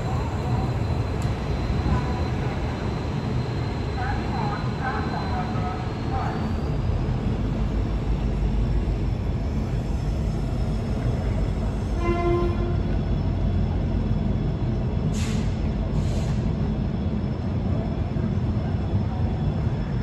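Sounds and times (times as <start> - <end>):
train wheels rumbling on track: 0.0 - 20.0
train horn note: 12.0 - 12.8
short hisses: 15.1 - 16.4.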